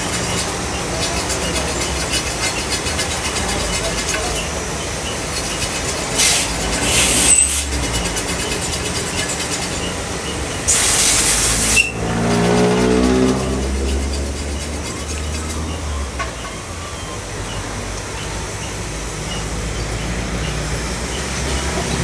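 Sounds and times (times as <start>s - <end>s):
vehicle engine droning: 0.0s - 22.0s
hissing air bursts: 2.0s - 13.3s.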